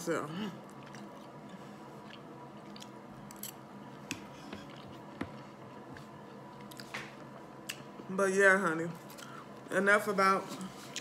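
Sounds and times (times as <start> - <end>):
chewing food: 0.6 - 3.6.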